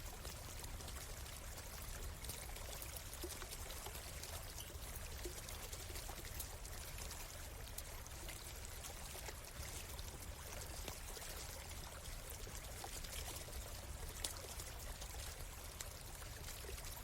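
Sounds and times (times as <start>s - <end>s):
stream running: 0.0s - 17.0s.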